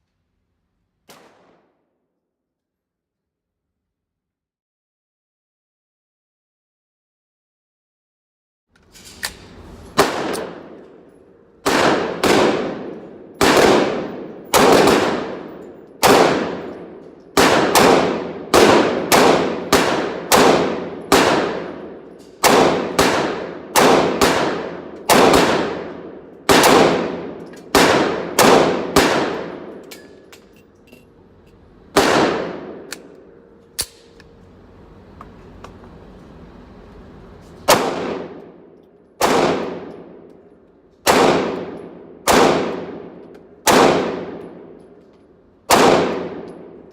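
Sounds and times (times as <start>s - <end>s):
handgun shots: 1.1s - 1.6s, 11.7s - 25.9s, 32.0s - 34.3s.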